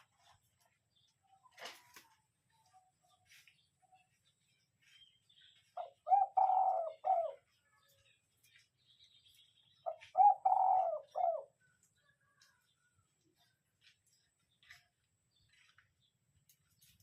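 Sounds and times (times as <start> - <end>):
dove cooing: 5.8 - 7.5, 9.9 - 11.6.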